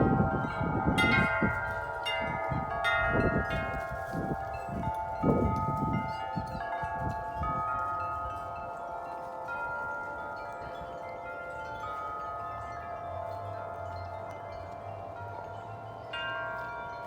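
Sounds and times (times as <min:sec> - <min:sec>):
strong wind: 0:00.0 - 0:11.0
wind chimes ringing: 0:00.0 - 0:17.0.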